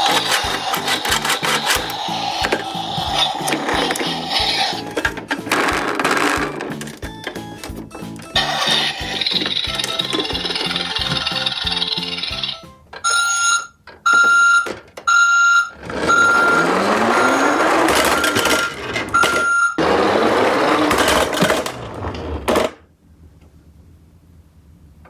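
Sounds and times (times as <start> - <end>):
electronic whirring rush: 0.0 - 5.0
toy short beeps: 11.2 - 19.8.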